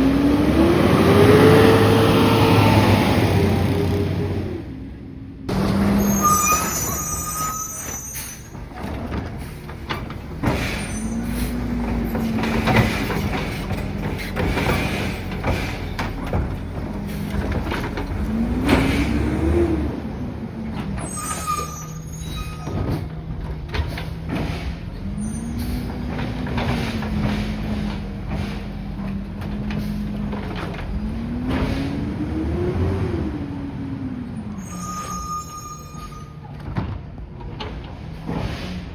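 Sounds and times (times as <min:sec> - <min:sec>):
truck engine revving: 0:00.0 - 0:04.8, 0:05.5 - 0:06.5, 0:08.5 - 0:21.1, 0:22.9 - 0:34.6.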